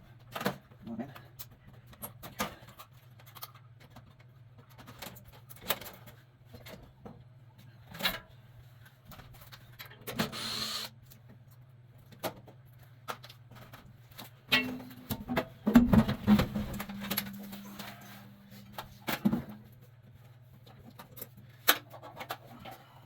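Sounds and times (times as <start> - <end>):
steady low hum: 6.0 - 21.8
short rasping burst: 10.2 - 10.9.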